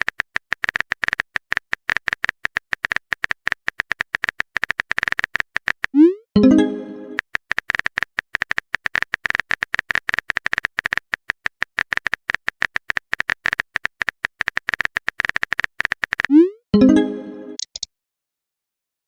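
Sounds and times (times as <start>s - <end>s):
rapid keyboard typing clicks: 0.0s - 16.4s, 17.6s - 17.9s
message notification chime: 6.4s - 7.2s, 16.8s - 17.6s.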